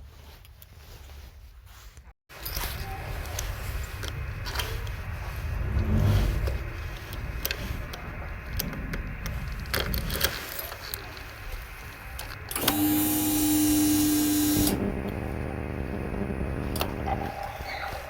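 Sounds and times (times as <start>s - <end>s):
sharp mechanical clicks: 12.2s - 17.2s
motorcycle engine turning over: 12.2s - 17.6s.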